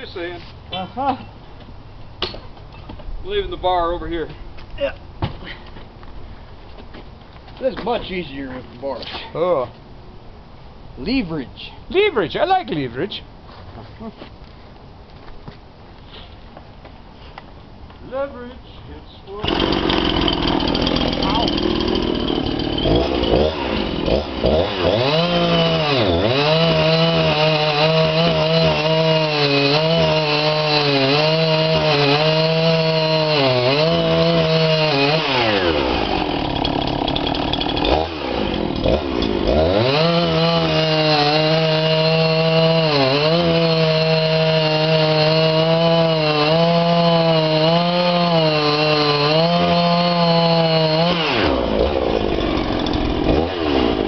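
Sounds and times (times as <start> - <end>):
chainsaw cutting a log: 19.3 - 54.0.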